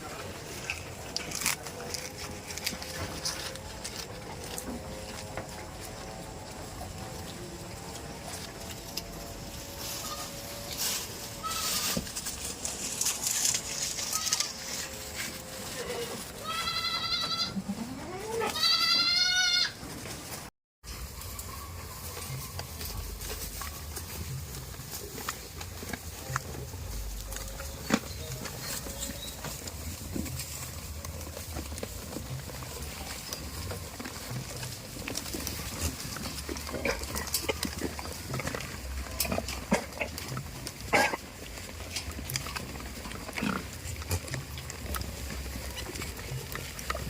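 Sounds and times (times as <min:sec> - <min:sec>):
goats making noises: 0:00.0 - 0:20.3, 0:22.1 - 0:47.0
goat bleating: 0:09.8 - 0:10.6, 0:11.4 - 0:12.1, 0:13.8 - 0:19.8.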